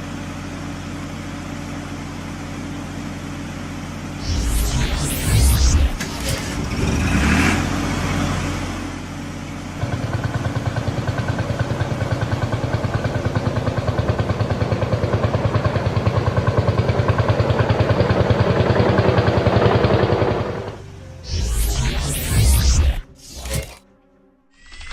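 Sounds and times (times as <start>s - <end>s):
cartoon whooshing effects: 4.2s - 7.2s, 21.3s - 23.8s
engine with fast pulsing beat: 4.2s - 7.4s, 9.8s - 20.7s.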